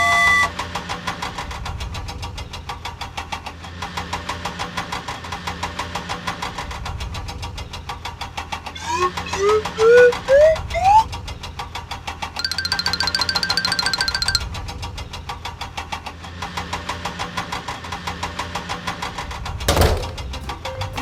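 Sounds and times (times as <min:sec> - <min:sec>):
rising whistle glides: 0:00.0 - 0:00.5, 0:08.8 - 0:11.1
cartoon engine humming and knocking: 0:08.8 - 0:11.1, 0:19.7 - 0:21.0.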